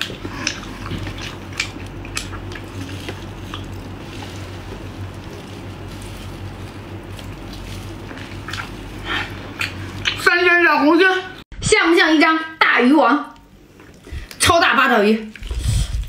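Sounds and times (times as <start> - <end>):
person biting and chewing: 0.0 - 10.2
low steady hum: 0.0 - 16.0.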